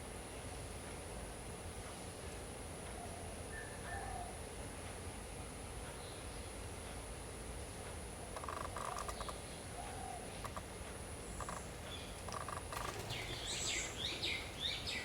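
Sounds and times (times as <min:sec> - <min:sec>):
faint rattling bird chirps: 0:01.9 - 0:04.6, 0:05.8 - 0:06.8, 0:08.2 - 0:15.0.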